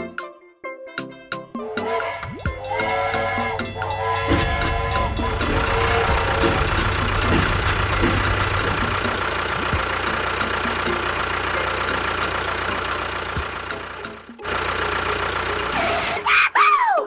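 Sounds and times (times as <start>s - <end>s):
faint regular ticking: 2.4s - 13.8s.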